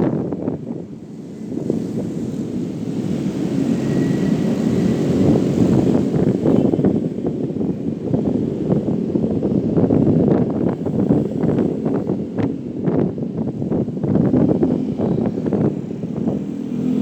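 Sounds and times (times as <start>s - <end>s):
wind rushing over microphone: 0.0s - 17.0s
motorcycle engine running: 9.8s - 17.0s.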